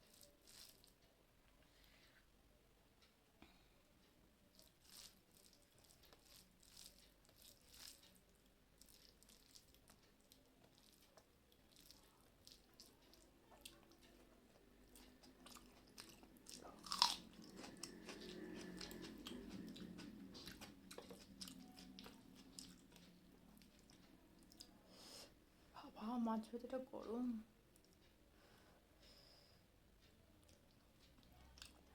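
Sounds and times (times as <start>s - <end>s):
chewing and biting: 4.6s - 8.2s, 8.8s - 24.7s
low hum: 14.6s - 24.9s.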